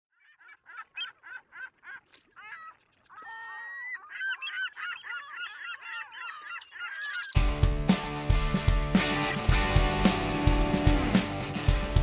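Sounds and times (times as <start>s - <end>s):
many birds calling: 0.1s - 7.6s.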